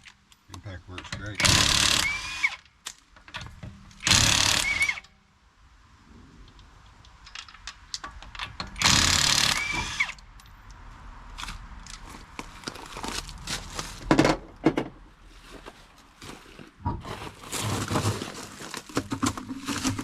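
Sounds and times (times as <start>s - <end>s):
metal parts and tools clanking: 0.0s - 2.0s, 7.2s - 10.7s
impact wrench burst: 1.4s - 2.6s, 4.0s - 5.0s, 8.8s - 10.2s.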